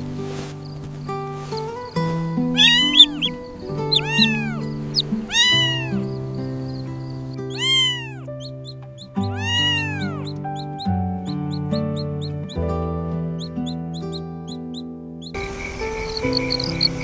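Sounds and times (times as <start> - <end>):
gentle background music: 0.0 - 17.0
cat meowing: 2.6 - 6.1, 7.5 - 8.4, 9.0 - 10.4.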